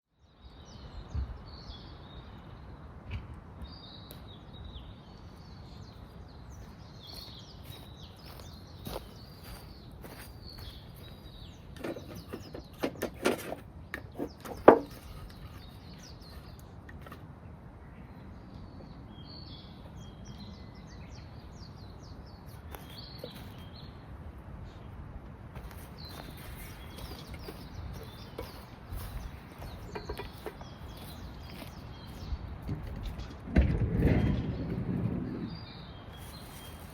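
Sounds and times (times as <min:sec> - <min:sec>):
birds chirping and singing: 0:03.8 - 0:16.8, 0:18.0 - 0:24.0, 0:25.6 - 0:33.4, 0:35.4 - 0:36.9
rustles and knocks: 0:11.8 - 0:17.2, 0:25.6 - 0:35.1.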